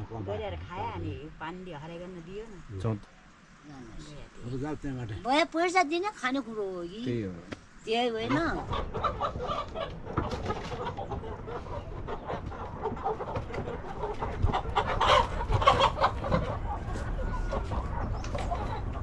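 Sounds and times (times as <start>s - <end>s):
chickens clucking: 6.6s - 19.0s.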